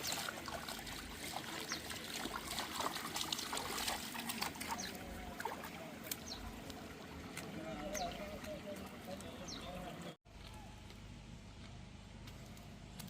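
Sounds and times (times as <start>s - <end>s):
water trickling: 0.0s - 10.2s.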